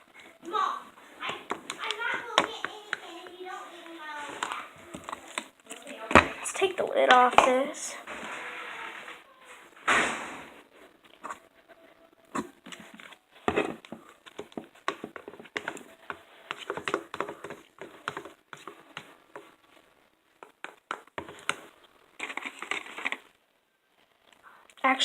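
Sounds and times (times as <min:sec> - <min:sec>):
hands tapping plastic containers: 0:01.2 - 0:03.4, 0:04.4 - 0:07.7, 0:12.4 - 0:19.5, 0:20.4 - 0:21.6.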